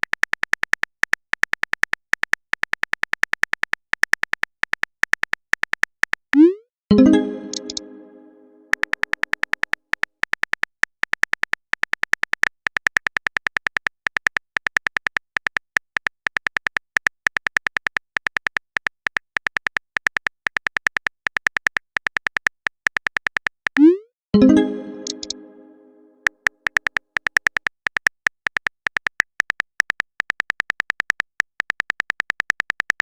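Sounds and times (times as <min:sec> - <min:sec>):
synth message alert chime: 0:06.4 - 0:08.8, 0:23.8 - 0:26.2
phone keyboard typing clicks: 0:07.1 - 0:08.0, 0:19.2 - 0:25.6, 0:26.2 - 0:33.0.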